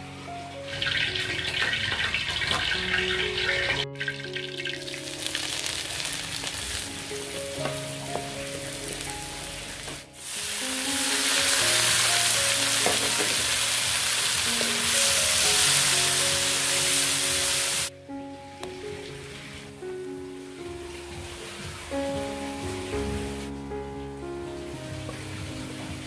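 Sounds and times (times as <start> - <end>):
soft background music: 0.0 - 26.0
snails sizzling in a wok: 4.5 - 7.6, 8.6 - 17.9.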